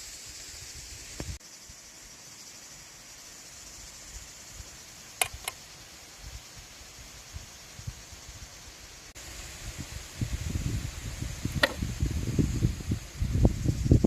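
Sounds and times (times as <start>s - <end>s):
steady high hiss: 0.0s - 14.0s
sharp clicks: 5.2s - 5.6s.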